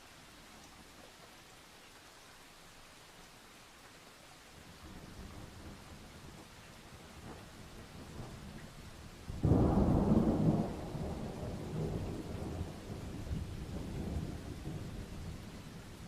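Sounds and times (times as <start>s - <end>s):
steady rain hissing: 0.0s - 16.0s
thunder crack and rumble: 9.2s - 16.0s.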